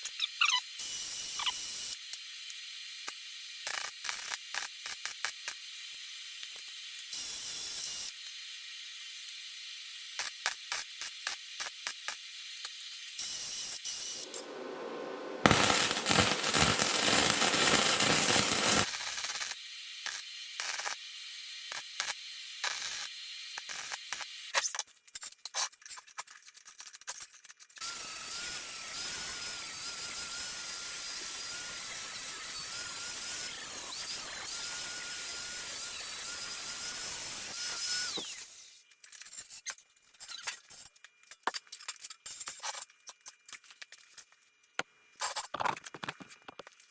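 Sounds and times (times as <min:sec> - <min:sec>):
welding arc crackling and sizzling: 0:00.8 - 0:24.7, 0:27.8 - 0:38.8.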